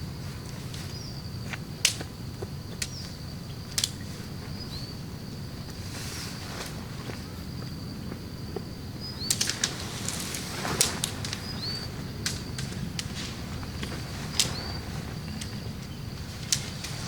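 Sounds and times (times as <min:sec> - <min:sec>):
steady low rumble: 0:06.7 - 0:17.0
sharp taps and rustling: 0:09.2 - 0:17.0.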